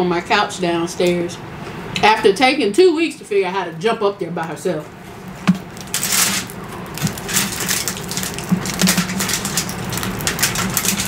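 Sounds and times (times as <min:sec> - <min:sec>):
person chewing crunchy food: 0:05.1 - 0:11.0.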